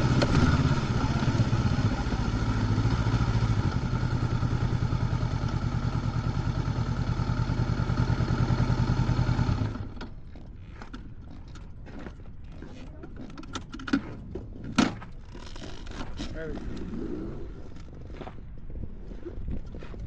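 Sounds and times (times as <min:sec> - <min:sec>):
motorcycle engine idling: 0:00.0 - 0:10.3.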